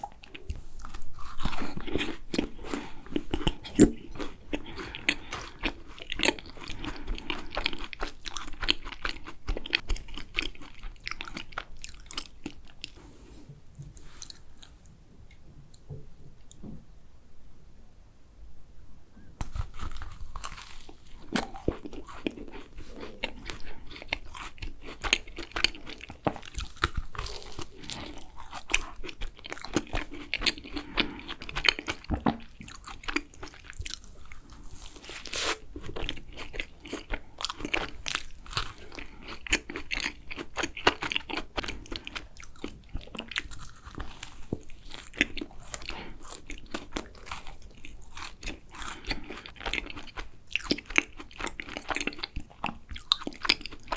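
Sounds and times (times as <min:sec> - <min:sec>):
moist chewing: 0:00.0 - 0:13.0, 0:19.4 - 0:53.9
crisp crunches of biting: 0:19.4 - 0:53.9.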